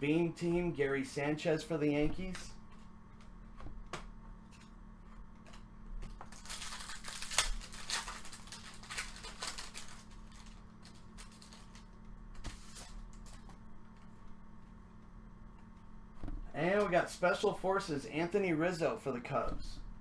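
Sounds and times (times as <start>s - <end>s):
card pack wrapper crinkling: 5.5s - 13.5s.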